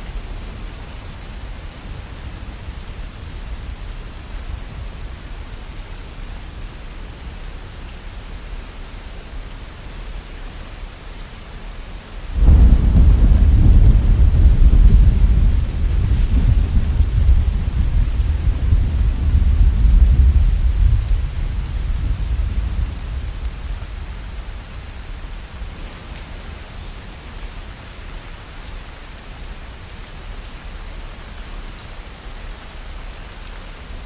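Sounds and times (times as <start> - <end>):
heavy rain: 0.0 - 34.0
thunder rumbling: 12.3 - 26.8.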